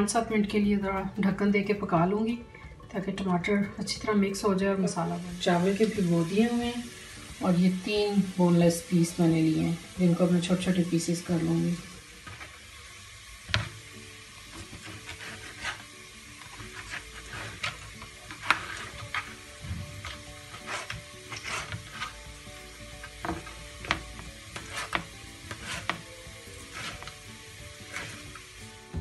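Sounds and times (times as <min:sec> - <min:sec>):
knife tapping cutting board: 0:23.2 - 0:26.0.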